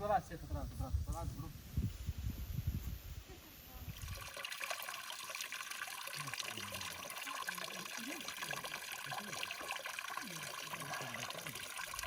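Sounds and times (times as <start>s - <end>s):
water running and trickling: 3.8s - 12.0s.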